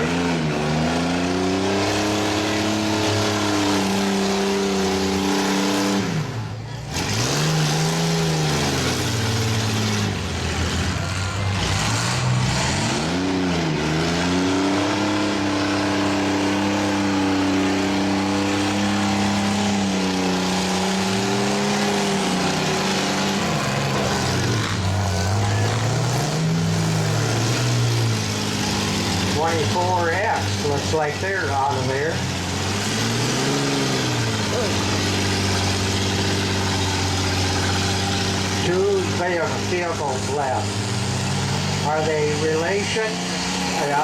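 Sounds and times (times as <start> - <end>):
truck engines revving hard: 0.0 - 44.0.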